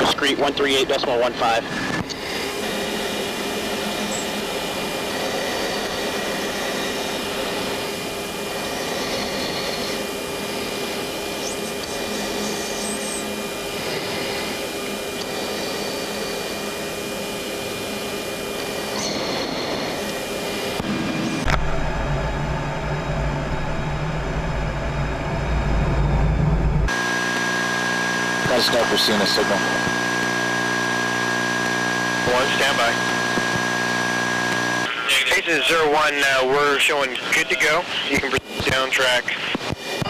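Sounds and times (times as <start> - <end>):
airflow and jet engine hiss: 0.0 - 21.5
steady whining tones: 0.0 - 40.0.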